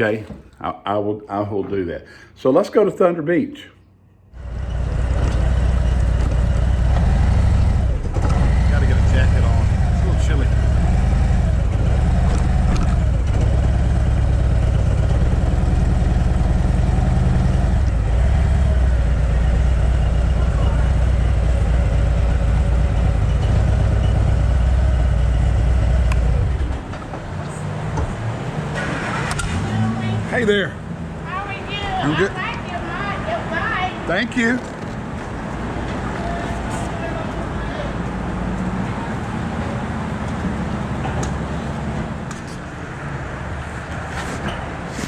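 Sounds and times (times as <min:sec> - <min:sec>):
motorcycle engine rumbling: 0:04.4 - 0:33.6.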